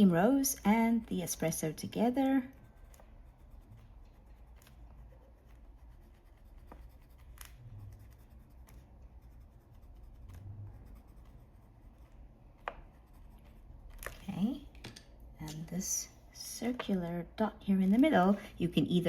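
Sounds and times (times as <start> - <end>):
pencil scratching on paper: 0.0 - 14.6.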